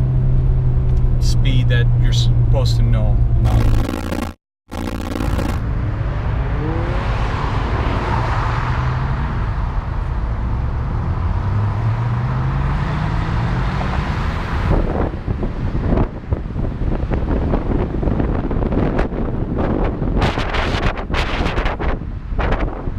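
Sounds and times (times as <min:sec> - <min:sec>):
car engine driving: 0:00.0 - 0:16.5
road noise: 0:00.0 - 0:22.9.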